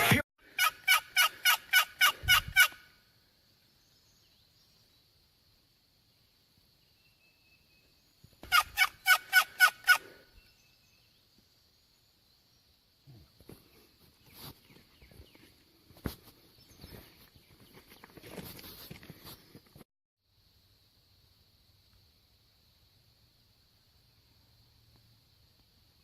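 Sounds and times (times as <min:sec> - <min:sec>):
turkey gobbling: 0:00.0 - 0:02.8, 0:08.4 - 0:10.1.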